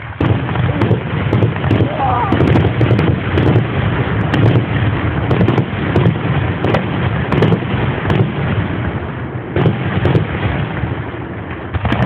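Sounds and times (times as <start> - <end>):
fireworks bangs: 0.0 - 12.0
noisy rumble: 0.0 - 12.0.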